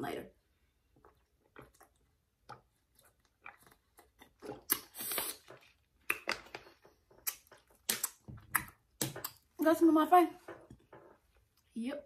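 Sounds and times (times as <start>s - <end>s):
chewing with wet clicks and crunches: 1.0s - 9.5s.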